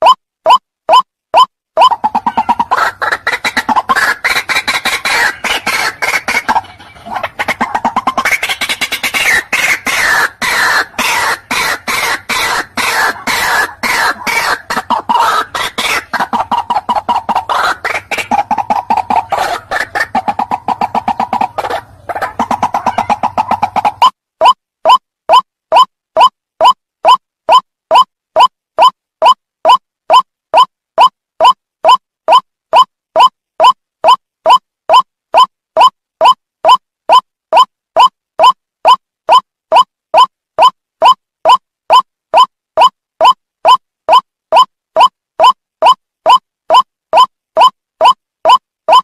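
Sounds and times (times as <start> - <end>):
waterhen croaking chorus: 1.9 - 24.0.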